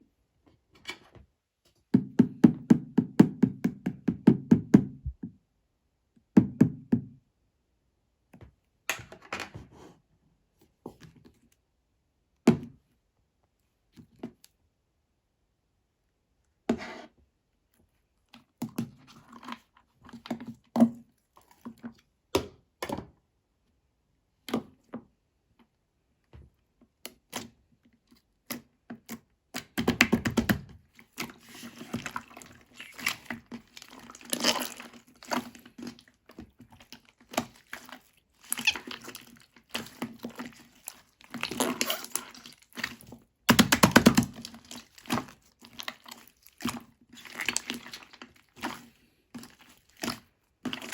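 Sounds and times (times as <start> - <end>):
slime squeezed by hand: 31.3 - 36.1, 36.8 - 43.0.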